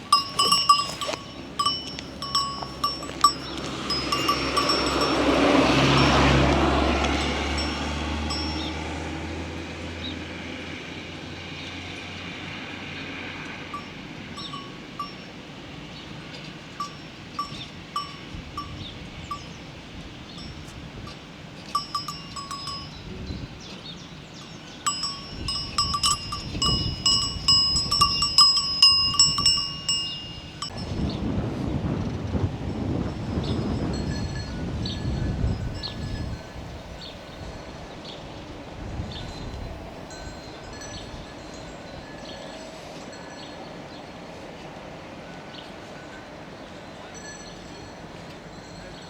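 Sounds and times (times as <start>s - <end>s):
cowbells clanking: 0.0s - 9.1s, 13.7s - 19.7s, 20.3s - 30.9s.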